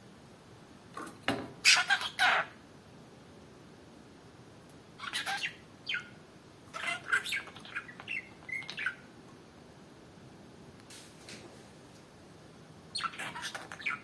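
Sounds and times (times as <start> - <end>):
budgerigar chirping: 1.6 - 2.5, 5.0 - 9.0, 12.9 - 14.0.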